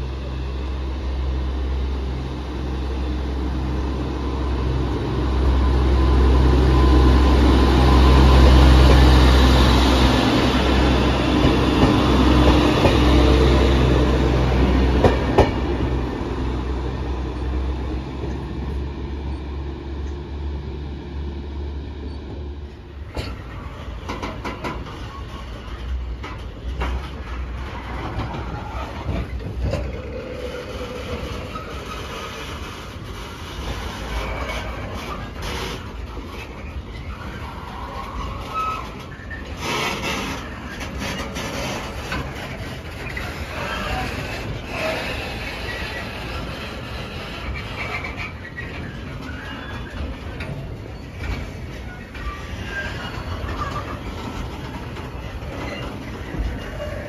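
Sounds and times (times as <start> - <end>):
diesel train engine drone: 0.0 - 57.0
wheel clacks over rail joints: 7.8 - 16.0, 22.9 - 57.0.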